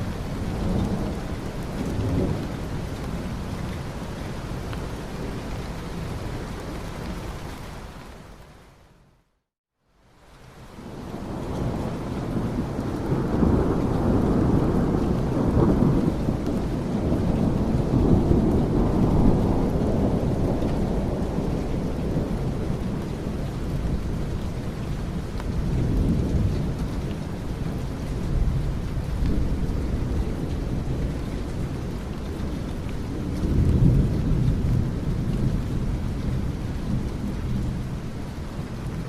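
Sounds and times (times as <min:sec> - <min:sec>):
steady rain: 0:00.0 - 0:39.0
rolling thunder: 0:10.9 - 0:39.0.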